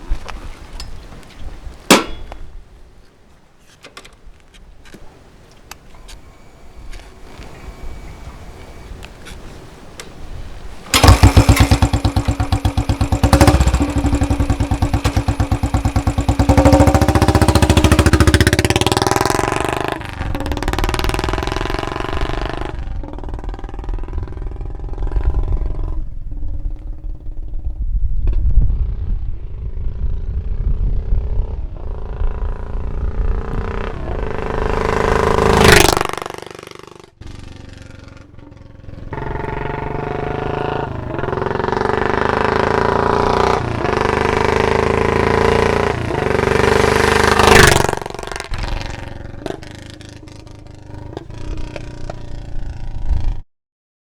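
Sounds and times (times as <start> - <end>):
motorcycle passing by: 10.9 - 53.4.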